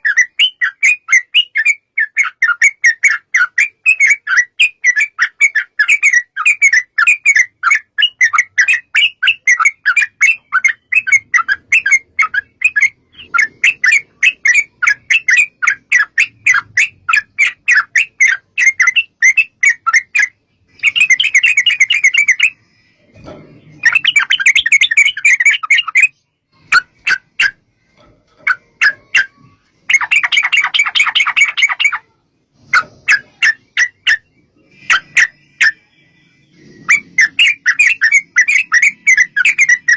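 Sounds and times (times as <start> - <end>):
birds chattering in sharp notes: 0.0 - 39.9.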